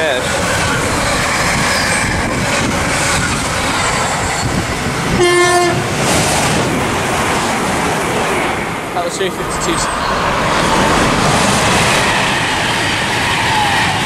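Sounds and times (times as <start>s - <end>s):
electric train passing: 0.0s - 14.0s
freight train rumbling on rails: 0.0s - 14.0s
train horn toot: 5.1s - 5.9s.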